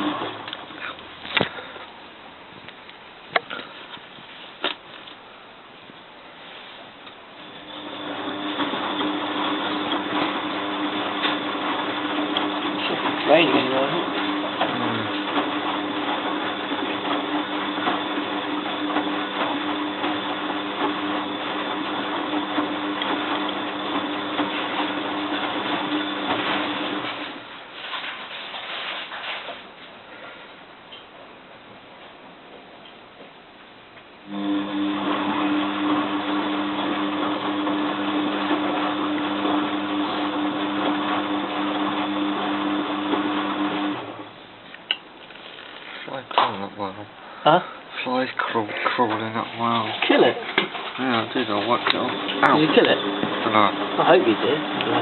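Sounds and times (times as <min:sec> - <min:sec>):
washing machine motor hum: 0:00.0 - 0:01.7, 0:07.4 - 0:27.9, 0:34.2 - 0:44.7, 0:46.1 - 0:55.0
washing machine churning and ticking: 0:07.6 - 0:27.4, 0:51.0 - 0:55.0.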